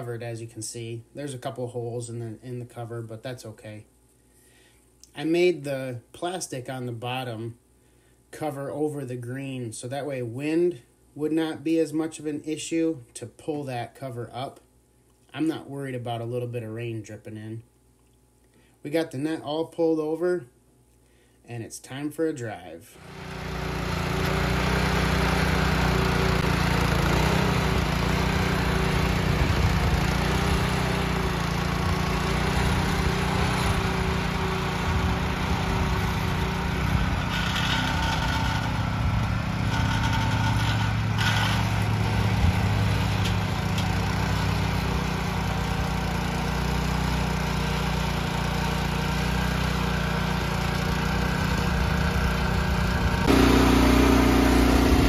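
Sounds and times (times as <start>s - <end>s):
small gasoline engine running: 23.0s - 55.0s.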